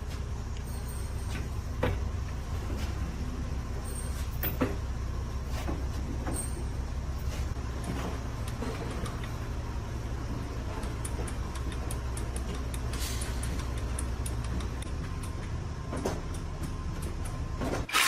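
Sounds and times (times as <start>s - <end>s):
low mechanical hum: 0.0s - 18.0s
light ticking clicks: 10.8s - 15.6s.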